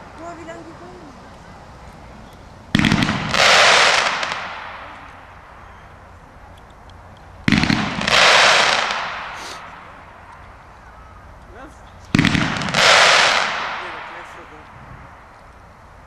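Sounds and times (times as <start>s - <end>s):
firework shell bang: 2.7s - 5.2s, 7.4s - 10.3s, 12.1s - 14.6s
hissing crackle of firework: 2.7s - 5.6s, 7.4s - 10.4s, 12.0s - 15.3s.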